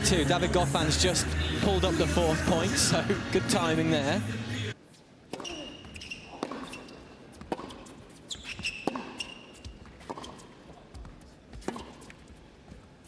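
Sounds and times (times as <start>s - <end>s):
shoe squeaks on court: 4.9s - 12.4s
tennis ball struck and bouncing: 5.3s - 10.6s, 11.6s - 12.2s.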